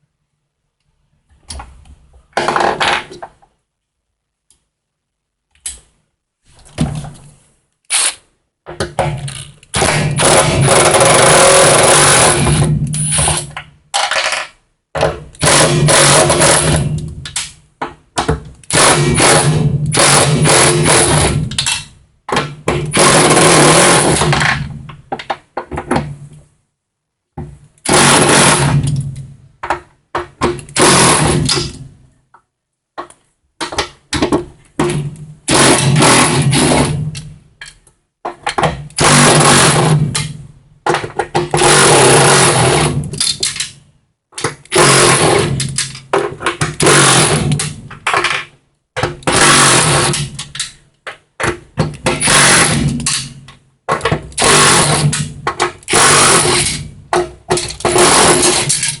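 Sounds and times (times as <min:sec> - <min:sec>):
electric power tool whirring: 0:55.9 - 0:56.8.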